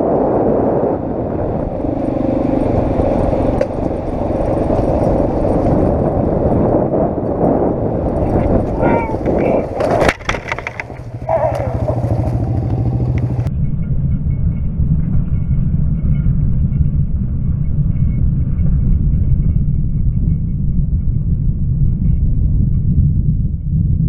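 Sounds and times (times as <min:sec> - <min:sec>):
vehicle engine running: 0:01.0 - 0:13.5.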